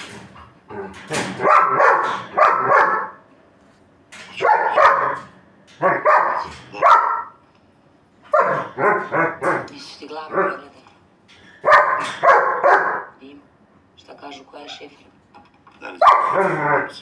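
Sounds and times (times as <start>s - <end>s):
dog barking: 1.4s - 3.3s, 4.3s - 7.4s, 8.3s - 10.7s, 11.6s - 13.2s, 15.8s - 17.0s.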